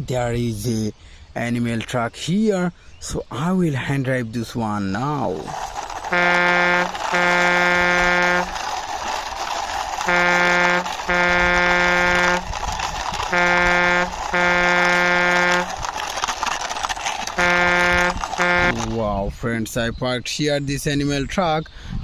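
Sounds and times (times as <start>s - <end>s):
truck horn honking: 6.0s - 8.6s, 10.0s - 12.6s, 13.2s - 15.8s, 17.3s - 18.9s.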